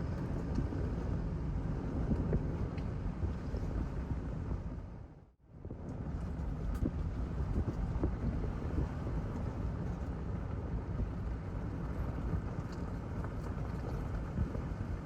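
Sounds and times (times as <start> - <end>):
vehicle rumble on dirt road: 0.0 - 15.0
wind on microphone: 5.6 - 15.0.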